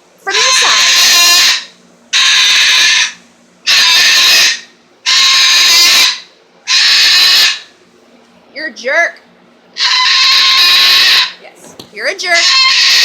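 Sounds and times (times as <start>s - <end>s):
parrot screaming: 0.2s - 7.7s, 9.8s - 11.4s, 12.2s - 13.0s.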